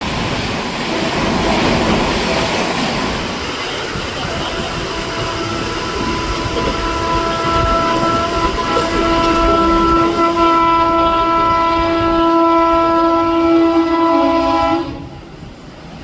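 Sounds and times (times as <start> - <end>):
fast train passing: 0.0 - 16.0
train horn: 4.2 - 15.3.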